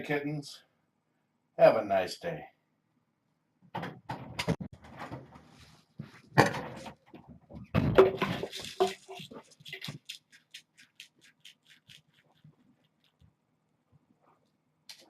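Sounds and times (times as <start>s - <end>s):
handling knocks and scrapes: 3.8s - 10.1s
light evenly spaced ticks: 8.8s - 13.4s.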